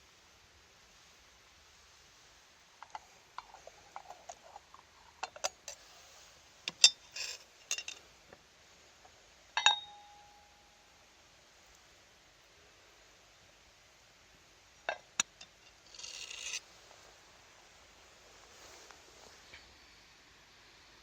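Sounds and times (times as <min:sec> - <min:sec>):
metal objects clicking and clinking: 0:06.7 - 0:08.0, 0:14.9 - 0:16.6
sharp ringing metal clank: 0:09.6 - 0:10.6.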